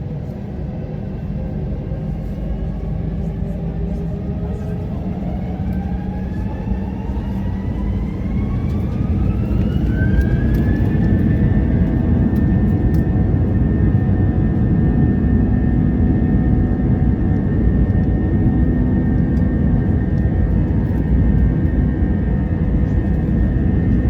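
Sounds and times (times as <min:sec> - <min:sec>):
heavy steady rumble: 0:00.0 - 0:24.0.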